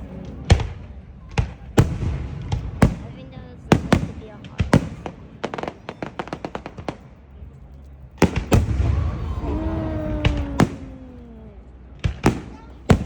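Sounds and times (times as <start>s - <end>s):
fireworks bangs: 0.0s - 7.5s, 8.1s - 13.0s
fireworks crackling pops: 0.0s - 13.0s
rumbling: 0.0s - 13.0s
long falling tone: 8.7s - 11.8s.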